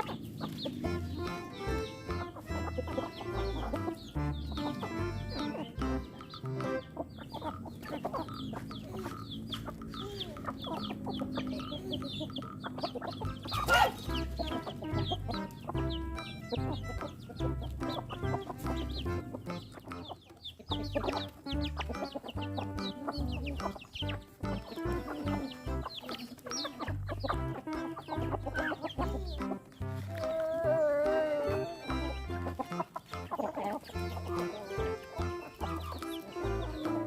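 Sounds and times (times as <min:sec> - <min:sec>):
background music with bass line: 0:00.0 - 0:07.2, 0:13.1 - 0:26.0, 0:26.8 - 0:37.0
chickens clucking: 0:00.0 - 0:37.0
sharp chicken call: 0:12.8 - 0:17.4.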